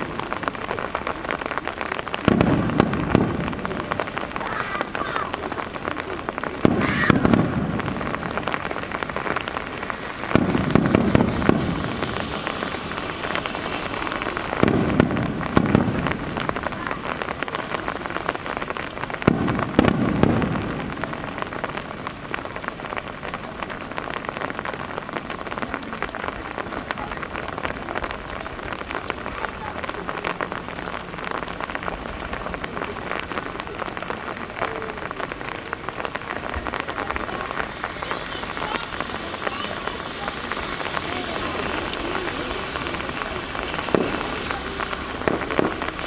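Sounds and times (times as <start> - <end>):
firework shells booming: 0.0 - 22.4, 35.2 - 46.0
rain hiss: 0.0 - 46.0.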